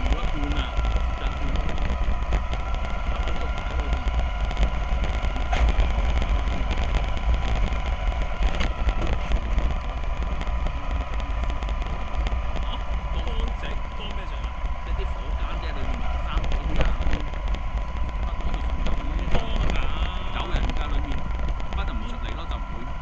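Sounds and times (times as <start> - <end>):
bus cabin rumble: 0.0 - 23.0
faint constant whine: 0.0 - 23.0.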